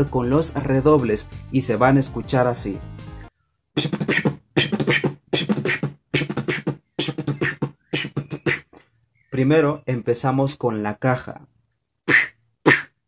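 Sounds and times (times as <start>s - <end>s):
person beatboxing: 3.8s - 8.8s, 12.1s - 13.0s.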